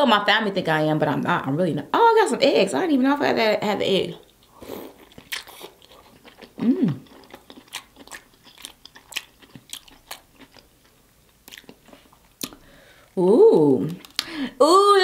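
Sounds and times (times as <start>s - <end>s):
chewing soft food: 4.2s - 12.6s, 13.9s - 14.2s
person humming mm: 6.6s - 7.1s
wet mouth clicks and smacks: 12.4s - 12.6s.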